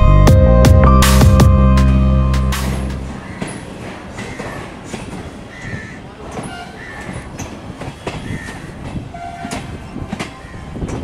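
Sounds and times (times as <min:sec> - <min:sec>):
train coach rumble: 0:00.0 - 0:11.0
wheels clicking over rail joints: 0:03.2 - 0:11.0.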